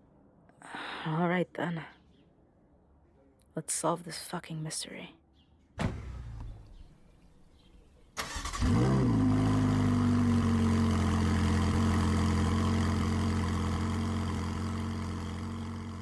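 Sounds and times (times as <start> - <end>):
car engine starting and idling: 5.8 - 16.0.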